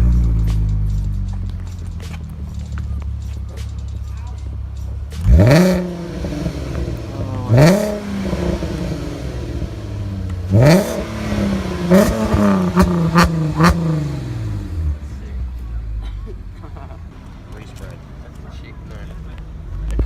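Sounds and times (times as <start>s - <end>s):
car engine revving: 0.0s - 4.0s, 4.6s - 15.4s.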